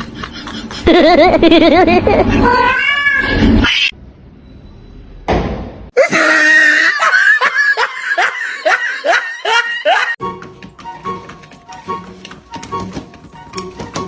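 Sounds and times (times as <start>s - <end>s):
person laughing: 0.0s - 2.5s, 6.0s - 10.2s.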